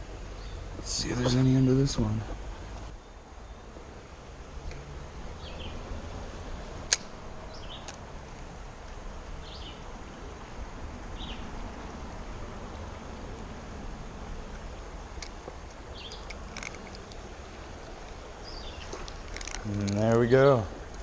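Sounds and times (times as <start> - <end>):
low outdoor rumble: 0.0 - 21.0
sharp click: 6.9 - 7.1
small bird chirping: 15.8 - 19.8.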